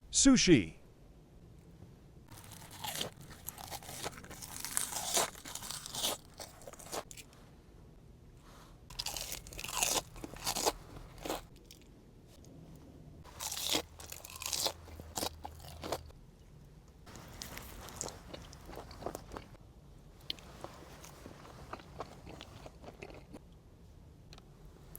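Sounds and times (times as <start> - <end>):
person chewing crunchy food: 2.3 - 7.3, 8.9 - 11.9, 13.2 - 19.6, 20.2 - 23.4.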